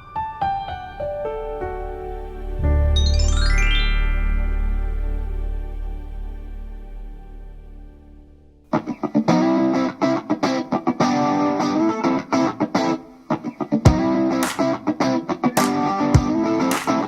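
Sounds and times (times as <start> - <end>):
rock music with electric guitar: 8.7 - 17.0.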